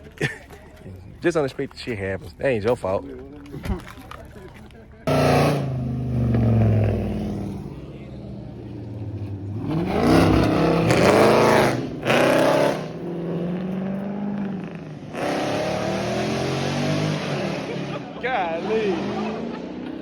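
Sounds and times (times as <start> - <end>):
car engine idling and revving: 5.0 - 20.0.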